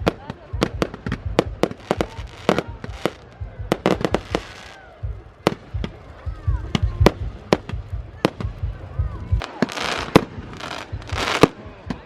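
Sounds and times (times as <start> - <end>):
bonfire crackling and popping: 0.0 - 12.0.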